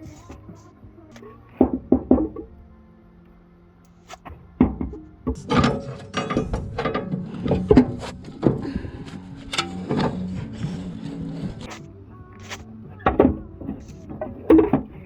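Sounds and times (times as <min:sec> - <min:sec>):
faint background music: 0:00.0 - 0:15.0
hand tools knocking and scraping: 0:04.2 - 0:11.8, 0:12.4 - 0:15.0.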